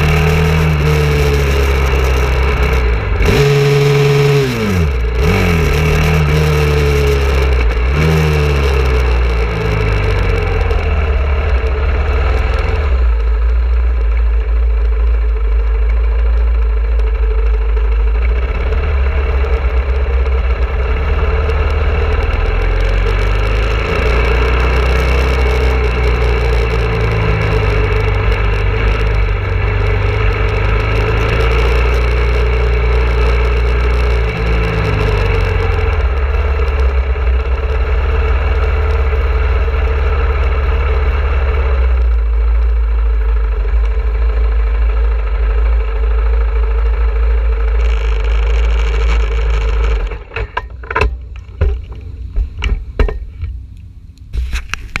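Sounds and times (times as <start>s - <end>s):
motorcycle engine running: 0.0s - 55.0s
sharp knocks and clicks: 47.8s - 53.6s.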